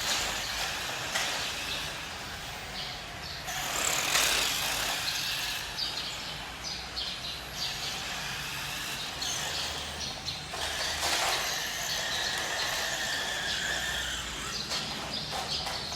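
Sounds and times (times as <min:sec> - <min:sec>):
electric motor whine: 0:07.5 - 0:14.9.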